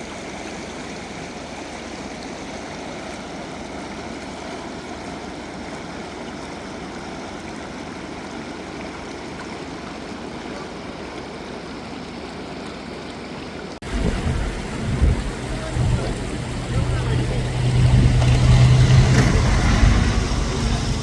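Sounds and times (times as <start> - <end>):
rushing river water: 0.0 - 21.0
louder deeper sound: 13.8 - 21.0.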